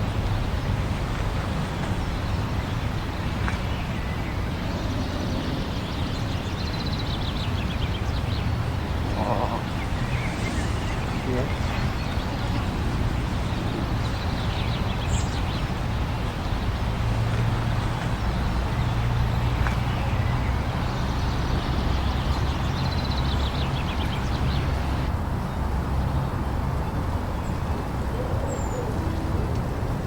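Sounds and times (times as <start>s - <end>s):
blizzard wind blowing: 0.0s - 19.5s.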